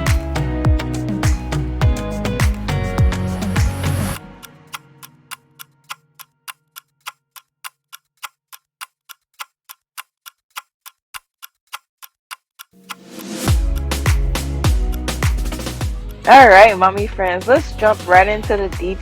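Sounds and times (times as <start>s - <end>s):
music: 0.0s - 5.4s, 12.8s - 19.0s
clock ticking: 4.4s - 19.0s.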